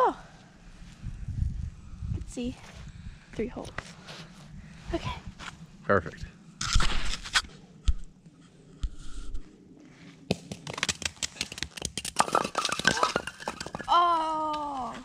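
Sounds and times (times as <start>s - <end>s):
wooden pins knocking and toppling: 10.3s - 15.0s
log rolling over ice: 10.5s - 15.0s.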